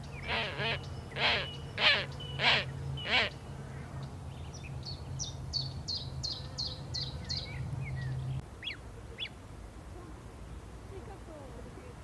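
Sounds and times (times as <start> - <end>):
downward-sweeping bird calls: 0.0 - 3.5
bird chirping: 0.0 - 9.4.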